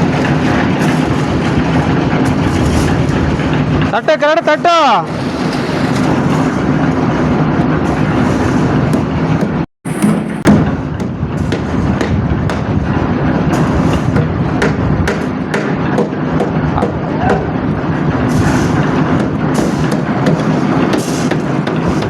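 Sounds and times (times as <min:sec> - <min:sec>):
machine engine humming: 0:00.0 - 0:04.4.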